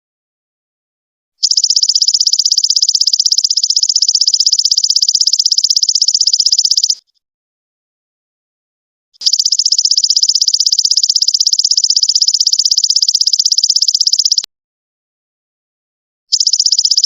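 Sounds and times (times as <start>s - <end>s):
insect high-pitched trill: 1.4s - 7.0s, 9.2s - 14.5s, 16.3s - 17.0s.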